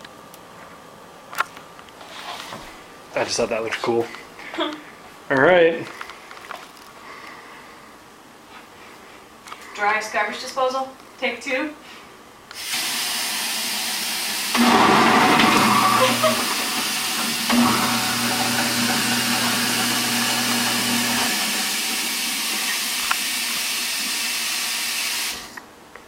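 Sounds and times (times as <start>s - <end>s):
rushing hiss: 12.6s - 14.6s
disposal motor hum: 12.6s - 25.6s.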